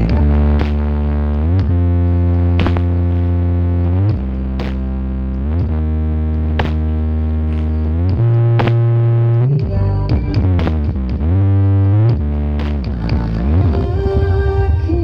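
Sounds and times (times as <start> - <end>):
loud electronic music with deep bass: 0.0 - 15.0.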